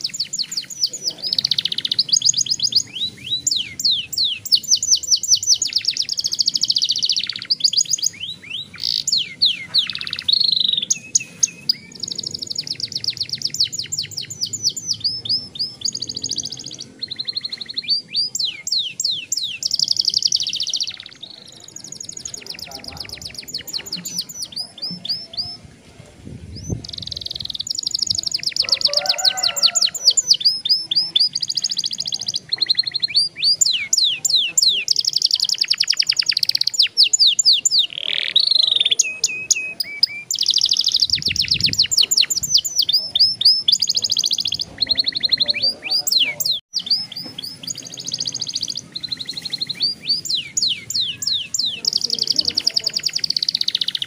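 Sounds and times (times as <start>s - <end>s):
canary trilling: 0.0s - 25.6s, 26.8s - 54.0s.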